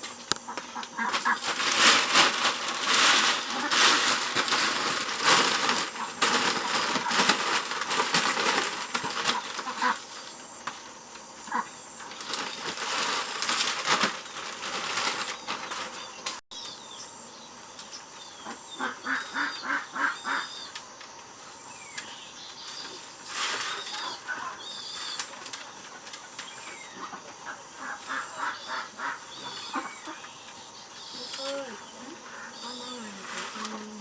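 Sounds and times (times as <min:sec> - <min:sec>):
wings flapping and rustling: 0:00.0 - 0:16.4, 0:21.9 - 0:34.0
fowl calling: 0:11.4 - 0:12.3, 0:18.4 - 0:20.8, 0:26.6 - 0:33.8.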